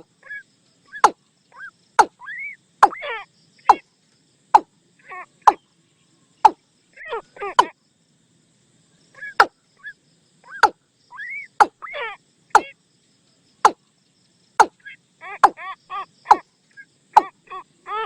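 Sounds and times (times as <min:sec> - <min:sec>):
bird warbling calls: 0:09.2 - 0:12.7.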